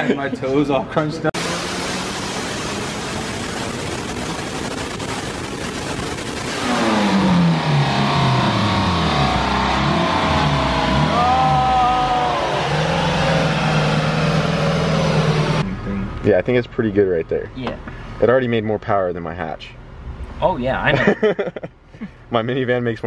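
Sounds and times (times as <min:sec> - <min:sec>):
dyno rollers turning: 0:01.4 - 0:15.6
minivan engine running on dyno: 0:01.4 - 0:16.3.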